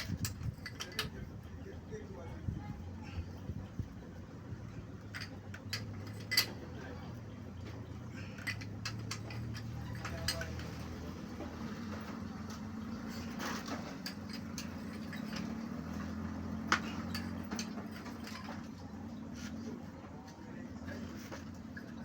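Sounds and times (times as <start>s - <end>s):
metal tools clicking on engine parts: 0.0s - 1.6s, 5.0s - 19.4s.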